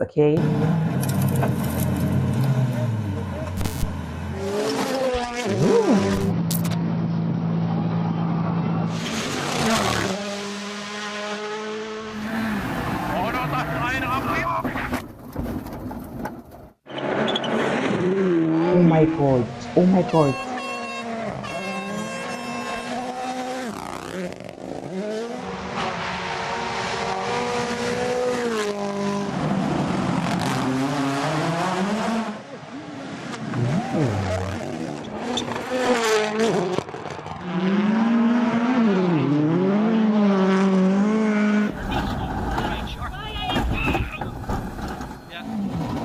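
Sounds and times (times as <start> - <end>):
rally car engines running: 0.4 - 46.0
noisy rush: 41.7 - 46.0
tyre noise: 41.7 - 46.0.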